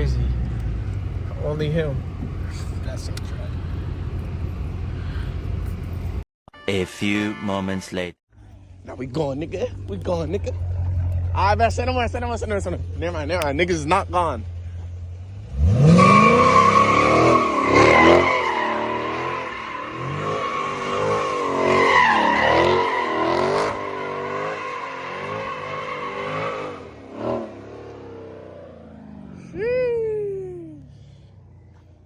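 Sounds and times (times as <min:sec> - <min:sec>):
car engine revving: 0:08.5 - 0:29.6
tires squealing: 0:09.1 - 0:31.9.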